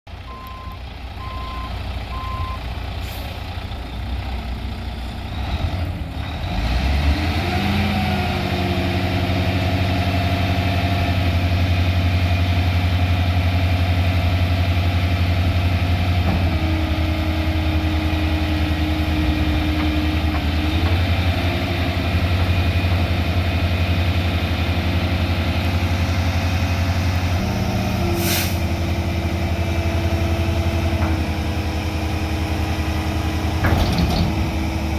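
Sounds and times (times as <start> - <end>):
truck diesel engine running: 0.1 - 34.9
short beeps: 0.3 - 2.6.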